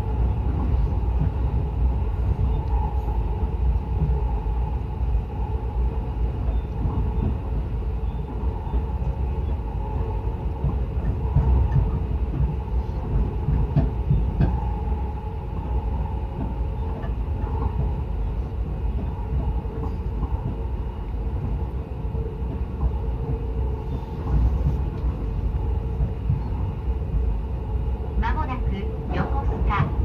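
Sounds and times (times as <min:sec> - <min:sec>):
electric train rumble and hum: 0:00.0 - 0:30.0
train wheels knocking: 0:10.6 - 0:14.8.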